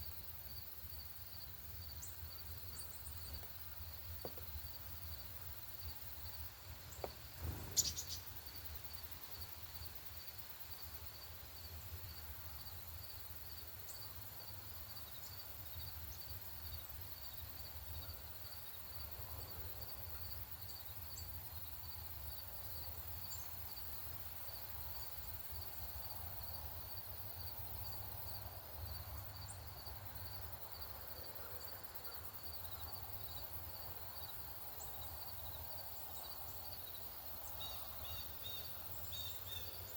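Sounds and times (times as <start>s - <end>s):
insect chirping: 0.0s - 39.9s
faint high chirps: 7.4s - 8.3s.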